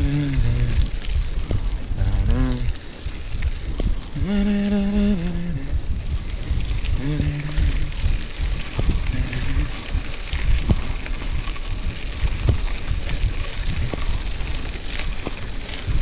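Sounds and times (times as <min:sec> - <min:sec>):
bike tyre noise: 0:00.0 - 0:16.0
wind buffeting microphone: 0:00.0 - 0:16.0
bike knocks and rattles: 0:08.0 - 0:16.0.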